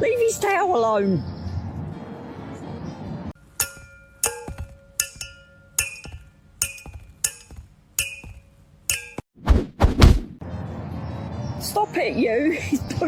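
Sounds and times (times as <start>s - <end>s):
clinking strikes like glass: 3.5s - 9.2s.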